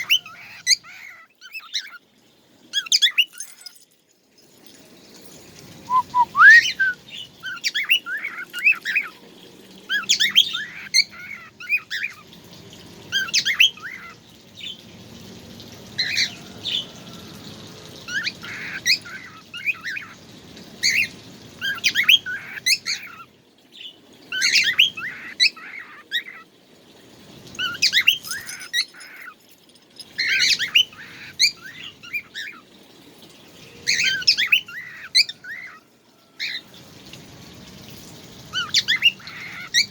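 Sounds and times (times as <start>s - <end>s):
songbird chirping: 5.9s - 9.2s.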